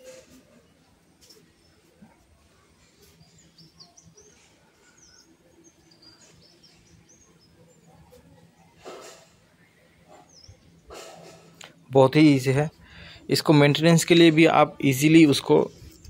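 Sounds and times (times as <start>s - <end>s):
small bird chirping: 2.9s - 8.9s.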